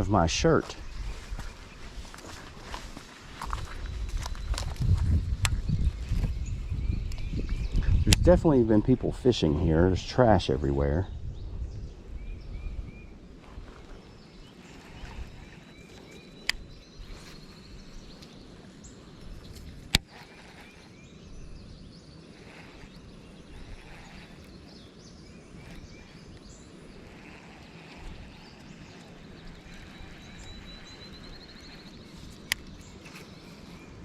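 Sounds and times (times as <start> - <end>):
small birds chirping: 0.0 - 34.0
wind rumbling on microphone: 0.0 - 34.0
bird trills rising: 14.2 - 34.0.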